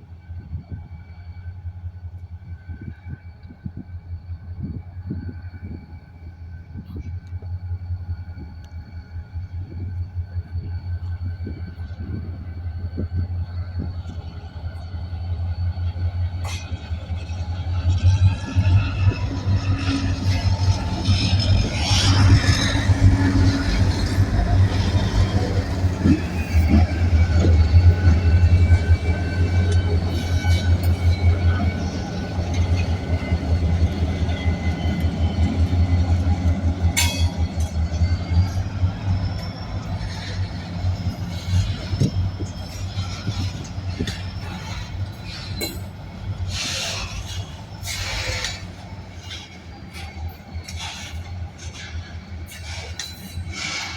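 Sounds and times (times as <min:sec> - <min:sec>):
diesel locomotive drone: 0:00.0 - 0:53.9
freight train rumbling: 0:00.0 - 0:53.9
wheels squealing: 0:15.2 - 0:53.9
metallic clanks: 0:36.9 - 0:37.8.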